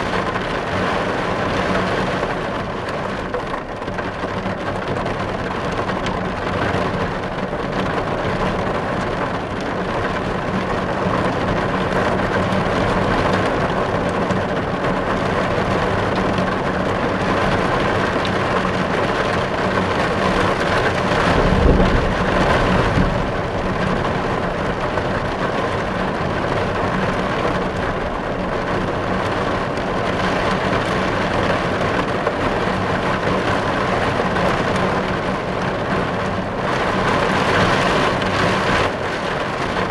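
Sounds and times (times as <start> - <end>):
heavy rain drumming on car glass: 0.0 - 39.9
low rumble: 21.1 - 25.5.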